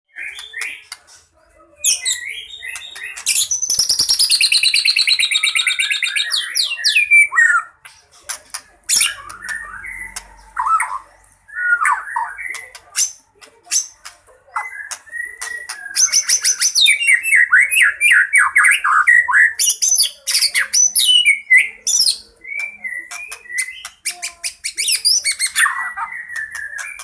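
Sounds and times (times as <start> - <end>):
songbird singing with rattling runs: 11.7 - 17.4, 19.6 - 27.0.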